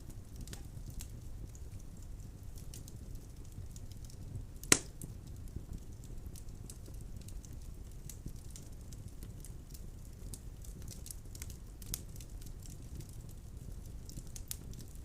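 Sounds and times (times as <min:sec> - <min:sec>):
wood fire rumble: 0:00.0 - 0:15.0
logs crackling: 0:03.4 - 0:06.0
sharp pop of burning log: 0:04.6 - 0:05.1.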